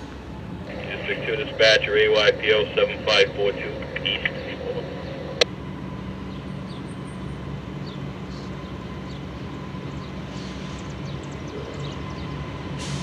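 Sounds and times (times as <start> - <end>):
low engine hum: 0.0 - 13.0
small birds chirping: 6.2 - 12.8.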